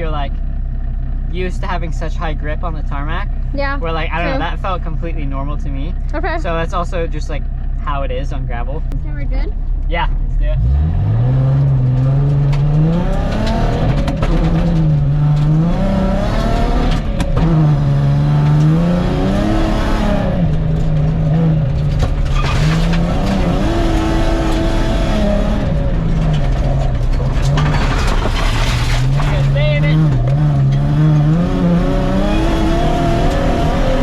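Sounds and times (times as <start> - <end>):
car engine driven hard: 0.0 - 34.0
tyres on gravel: 25.8 - 30.4.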